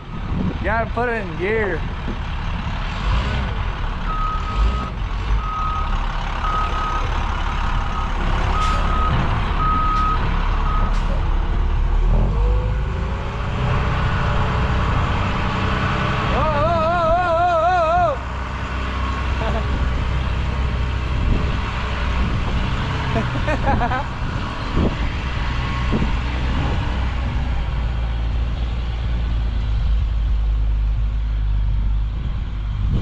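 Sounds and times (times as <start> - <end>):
heavy vehicle engine: 0.0 - 33.0
reversing alarm beeps: 4.1 - 10.9.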